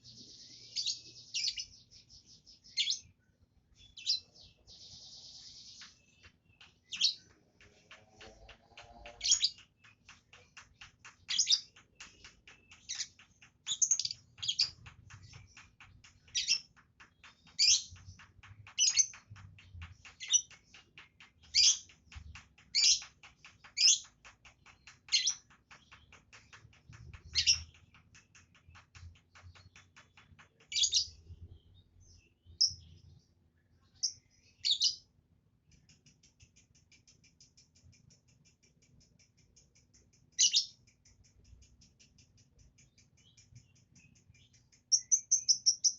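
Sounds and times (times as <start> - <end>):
lovebird chirping: 11.3 - 18.1, 43.2 - 45.9.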